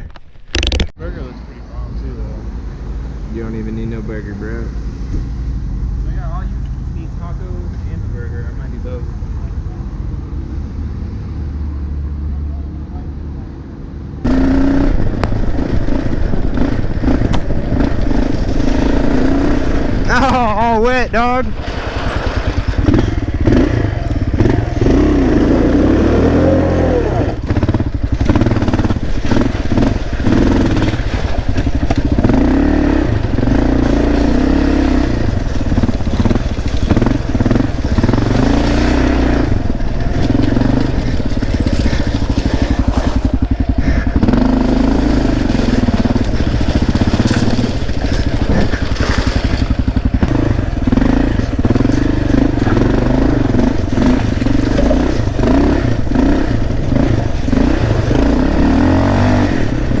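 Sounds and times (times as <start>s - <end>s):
motorcycle engine revving: 12.9s - 60.0s.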